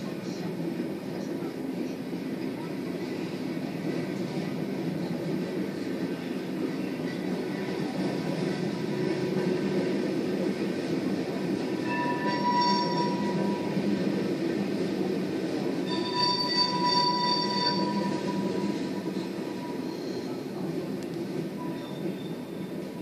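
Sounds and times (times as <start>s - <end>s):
freight train wheels rumbling: 0.0s - 23.0s
wheels squealing: 11.8s - 13.9s, 15.8s - 20.5s, 21.6s - 22.9s.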